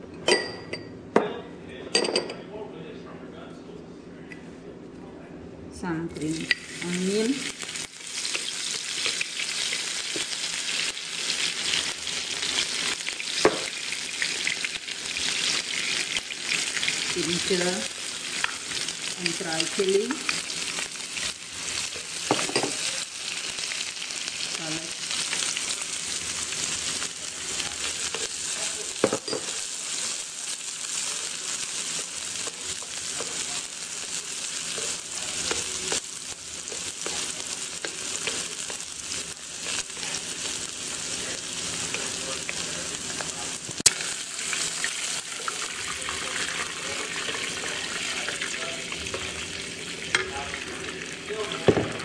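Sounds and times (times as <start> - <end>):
oil sizzling in a wok: 6.2 - 52.0.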